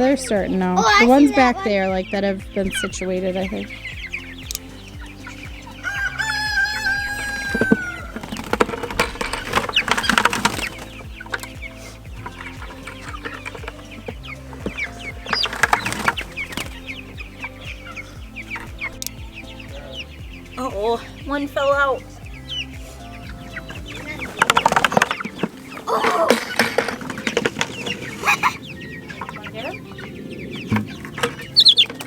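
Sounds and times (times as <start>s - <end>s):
chicks peeping and clucking: 0.0s - 32.0s
long drawn-out chick call: 3.7s - 8.6s.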